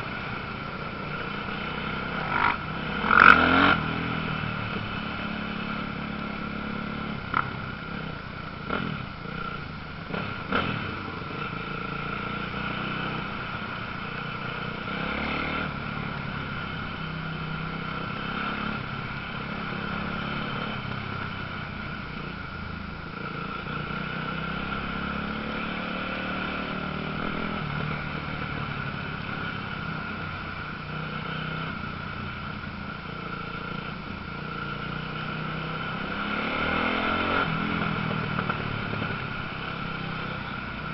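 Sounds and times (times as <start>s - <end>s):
motocross engines revving: 1.1s - 6.4s.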